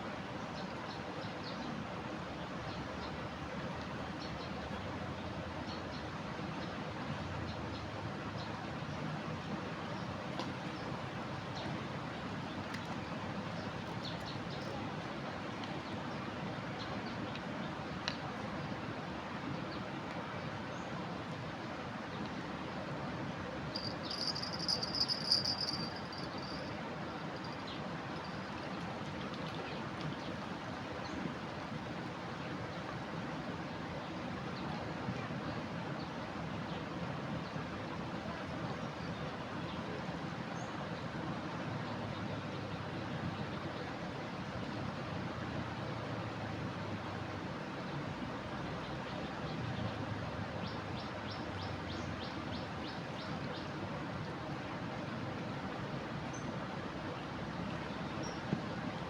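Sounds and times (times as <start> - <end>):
river rushing: 21.1 - 34.5
high insect-like trill: 23.8 - 26.7.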